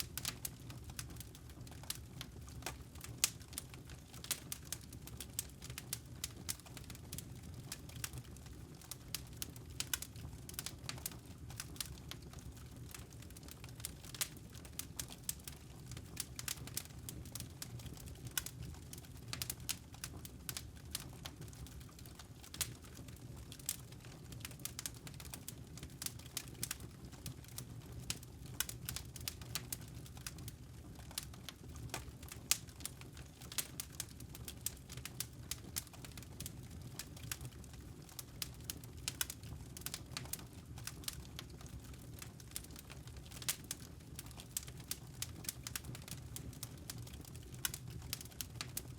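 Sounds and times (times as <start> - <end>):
low fire rumble: 0.0 - 48.9
wood fire crackling: 0.0 - 48.9.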